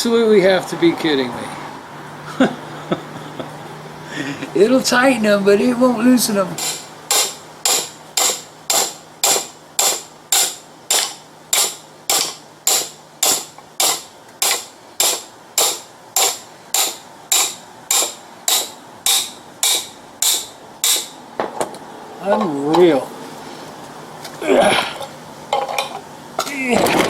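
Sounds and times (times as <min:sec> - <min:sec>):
hammer blows on steel: 0:06.6 - 0:21.2.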